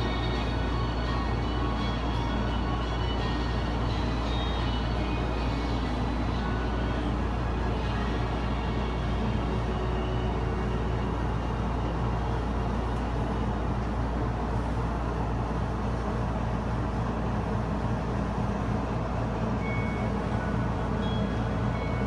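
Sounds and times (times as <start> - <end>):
low hum and rumble: 0.0 - 22.0.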